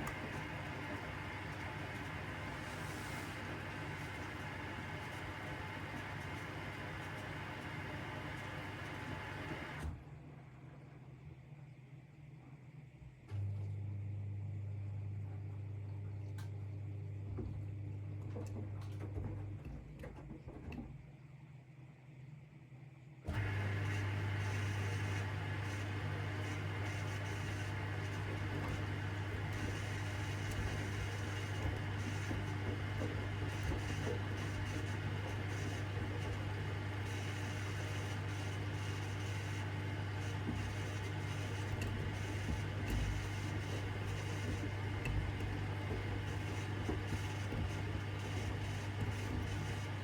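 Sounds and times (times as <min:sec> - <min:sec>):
washing machine humming: 0:00.0 - 0:11.6, 0:23.3 - 0:50.0.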